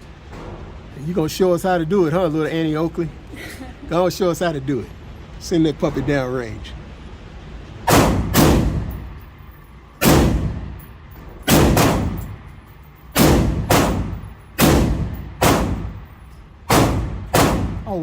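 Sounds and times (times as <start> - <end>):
gunshots with echo: 7.9 - 9.0, 10.0 - 10.8, 11.5 - 12.3, 13.2 - 16.0, 16.7 - 17.9.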